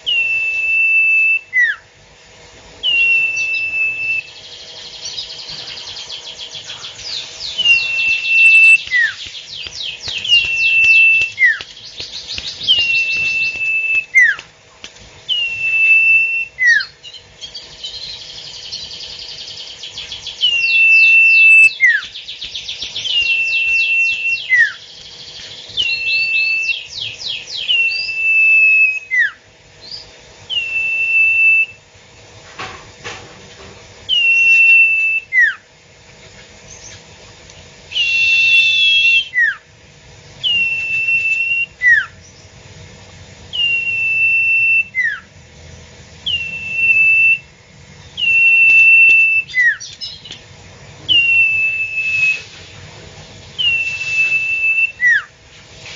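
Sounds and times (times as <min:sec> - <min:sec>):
bird trill and whistle call: 0:00.0 - 0:01.8, 0:02.8 - 0:14.4, 0:15.3 - 0:31.8, 0:34.1 - 0:35.6, 0:37.9 - 0:39.6, 0:40.4 - 0:42.5, 0:43.5 - 0:45.3, 0:46.2 - 0:47.5, 0:48.1 - 0:50.4, 0:51.1 - 0:52.6, 0:53.6 - 0:55.3
faint steady hum: 0:00.0 - 0:55.9.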